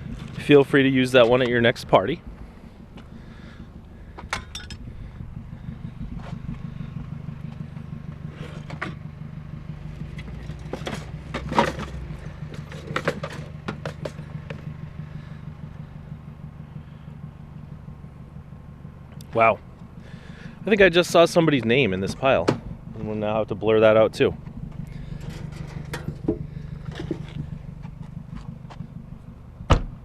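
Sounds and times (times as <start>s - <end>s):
engine humming: 0.0s - 30.0s
rummaging through trash: 10.5s - 14.2s.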